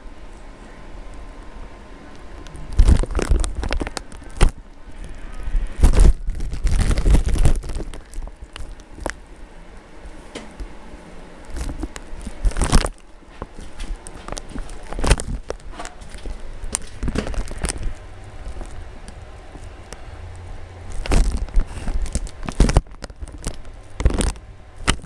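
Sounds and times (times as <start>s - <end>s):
crunching and scraping in snow: 11.5s - 25.0s.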